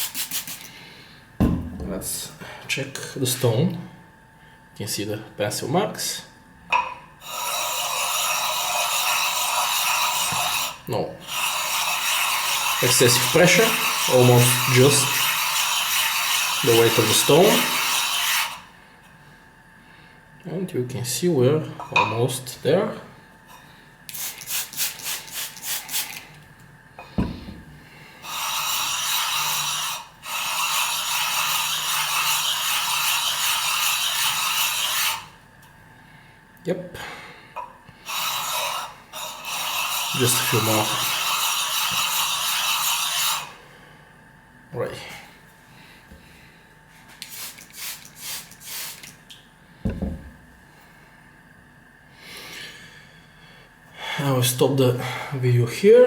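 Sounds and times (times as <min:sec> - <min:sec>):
knock: 0:01.4 - 0:01.8, 0:49.9 - 0:50.4
whetstone scraping on plate: 0:28.3 - 0:35.2, 0:38.1 - 0:43.5.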